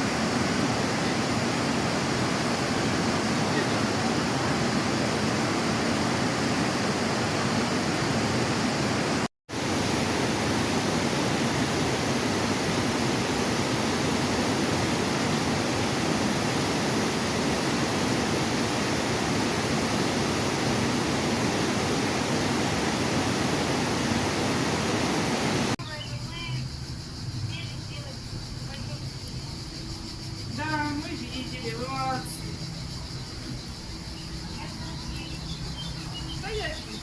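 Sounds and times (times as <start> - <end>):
waterfall rushing: 0.0 - 25.8.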